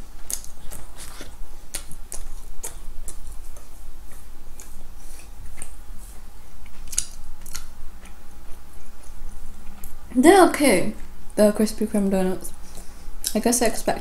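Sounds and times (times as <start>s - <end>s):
wet chewing and lip smacks: 0.2s - 10.0s.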